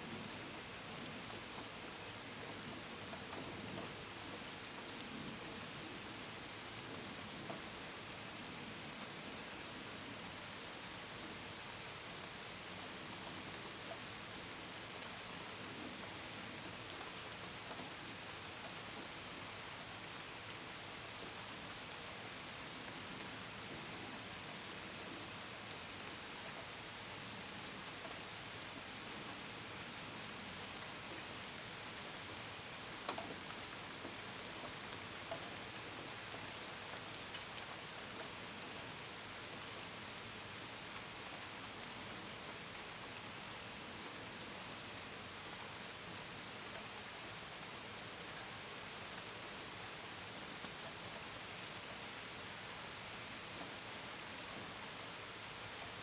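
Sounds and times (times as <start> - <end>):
gentle rain falling: 0.0 - 56.0
crickets chirping: 25.7 - 56.0.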